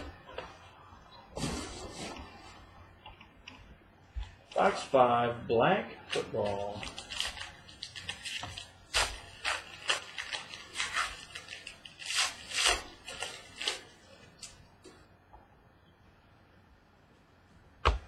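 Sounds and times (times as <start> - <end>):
packaging and cards rustling: 6.0 - 14.6.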